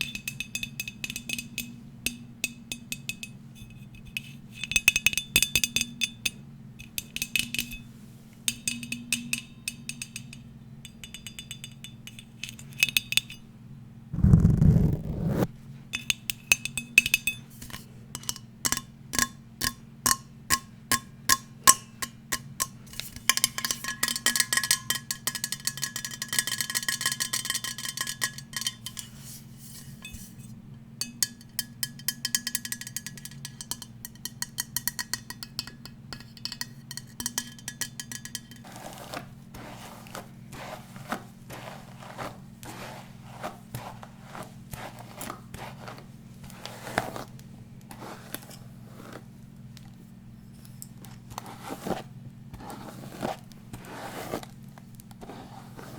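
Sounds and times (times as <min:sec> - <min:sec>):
dull scratchy strokes: 0:14.2 - 0:15.5.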